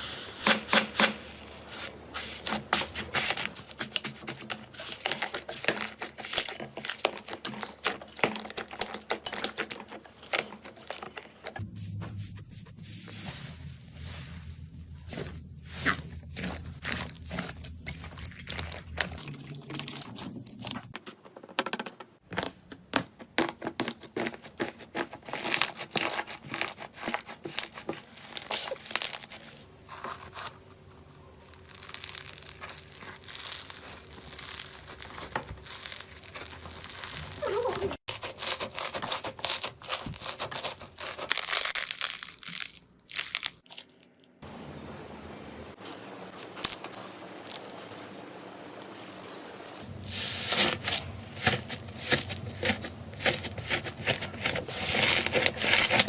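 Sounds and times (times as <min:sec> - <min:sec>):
slime crackling and popping: 0:31.4 - 0:44.4.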